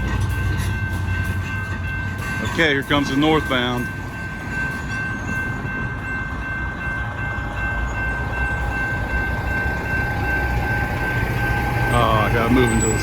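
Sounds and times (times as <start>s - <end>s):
freight train rumble: 0.0s - 13.0s.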